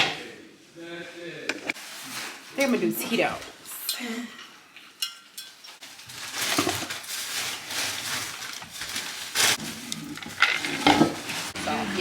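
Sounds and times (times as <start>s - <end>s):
glass and kitchenware clinking: 3.9s - 5.8s
clattering and handling noise: 4.8s - 12.0s.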